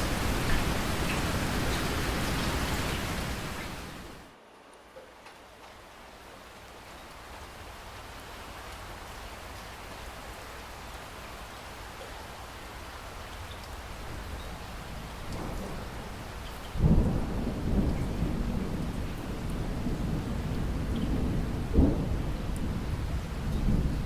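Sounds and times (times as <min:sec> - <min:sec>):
steady rain: 0:00.0 - 0:24.0
thunder rumble and crack: 0:15.1 - 0:24.0.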